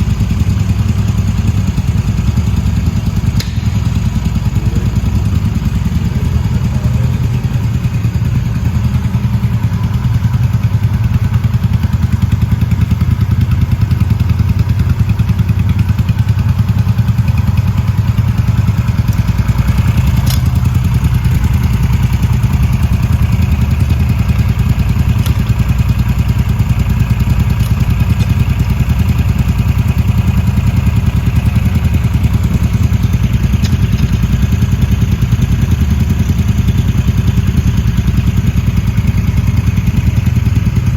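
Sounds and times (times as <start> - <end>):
motorcycle engine idling: 0.0 - 40.9
sharp click: 3.4 - 4.1.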